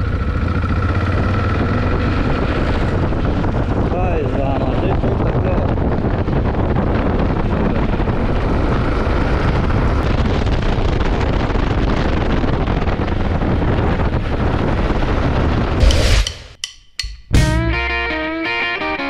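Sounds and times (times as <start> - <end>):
motorcycle engine running: 0.0 - 4.0
wind buffeting microphone: 0.0 - 15.9.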